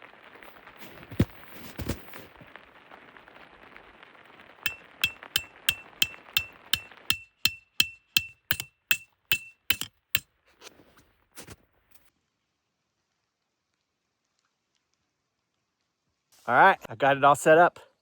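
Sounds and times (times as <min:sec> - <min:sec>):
hammer striking metal tent stake: 0:04.7 - 0:09.9.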